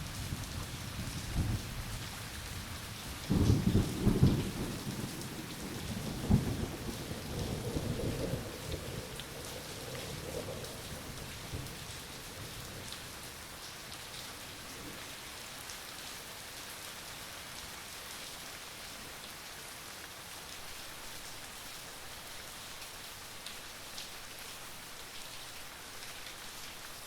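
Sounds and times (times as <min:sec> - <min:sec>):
rain falling: 0:00.0 - 0:27.0.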